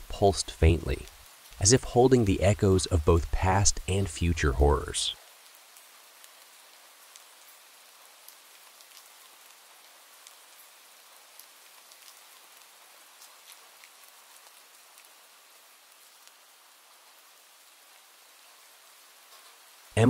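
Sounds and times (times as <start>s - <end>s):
raindrops ticking: 0.0s - 5.2s
soft steady rain: 0.0s - 20.0s.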